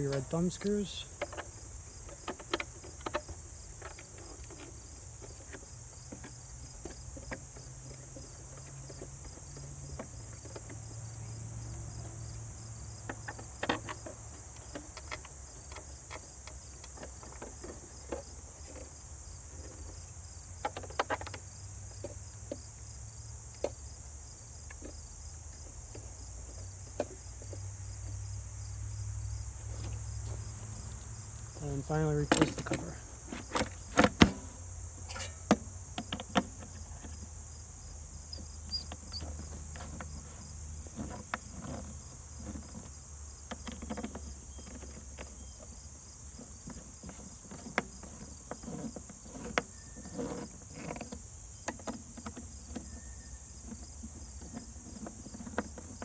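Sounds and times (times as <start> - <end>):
small clicks and knocks: 13.0 - 18.9, 32.2 - 37.3.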